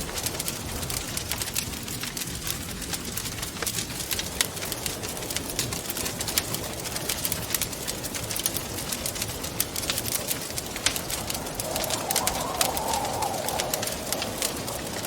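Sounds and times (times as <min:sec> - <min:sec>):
wood fire crackling: 0:00.0 - 0:15.0
hollow wind howl: 0:09.0 - 0:15.0.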